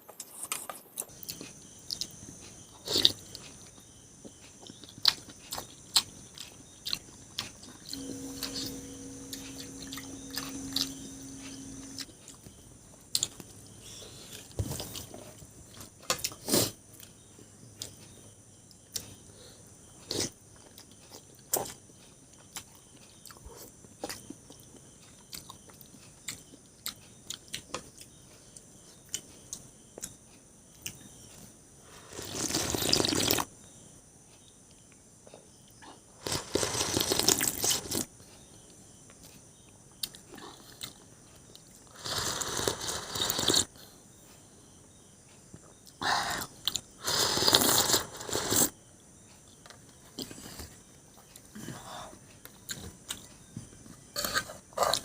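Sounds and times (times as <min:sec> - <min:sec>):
person chewing food: 0:00.2 - 0:12.5, 0:40.0 - 0:43.7, 0:45.6 - 0:48.7.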